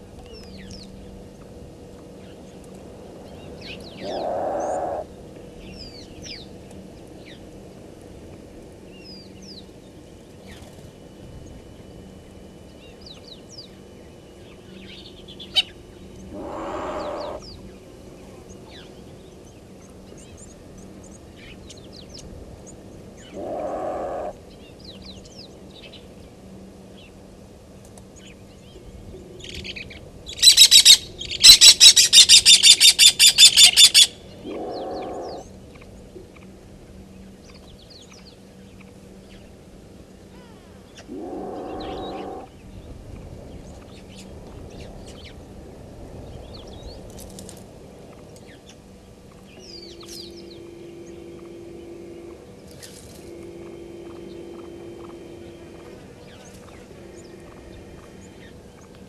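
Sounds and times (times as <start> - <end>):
rapid chattering bird call: 16.3 - 17.5, 30.4 - 35.4, 41.0 - 42.5.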